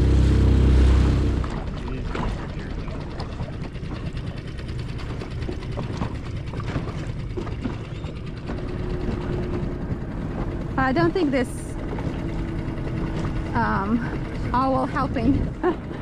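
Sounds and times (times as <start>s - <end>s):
outboard motor idling: 0.0s - 16.0s.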